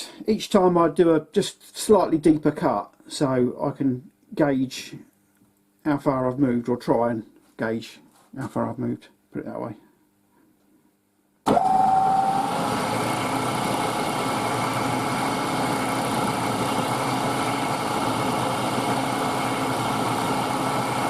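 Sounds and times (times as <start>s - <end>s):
milling machine spindle motor running: 11.5s - 21.0s.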